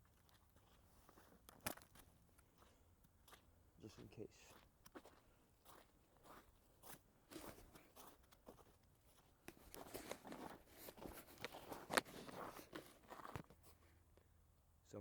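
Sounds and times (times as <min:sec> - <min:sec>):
footsteps crunching in snow: 0:00.1 - 0:13.8.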